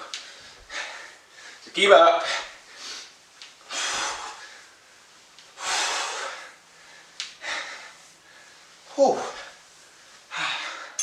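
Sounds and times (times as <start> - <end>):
person breathing hard: 2.2 - 4.8, 5.6 - 8.8, 9.4 - 11.0.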